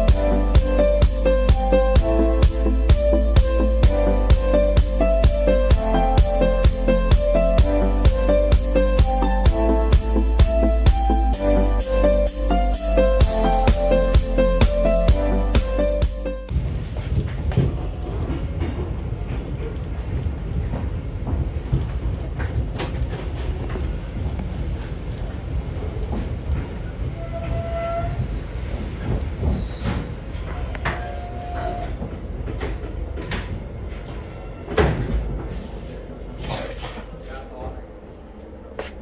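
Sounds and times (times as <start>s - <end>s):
train rumble on rails: 0.0s - 15.2s, 16.5s - 39.0s
clicking train wheels: 16.5s - 35.8s
high-pitched wheel squeals: 25.4s - 35.1s.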